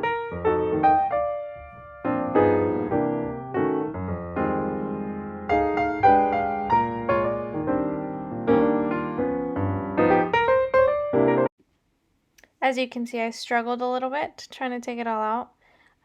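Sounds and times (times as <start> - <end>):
gentle piano music: 0.0 - 11.5.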